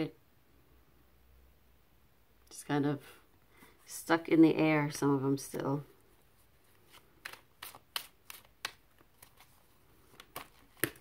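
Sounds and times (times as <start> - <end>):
cards being shuffled: 6.4 - 11.0.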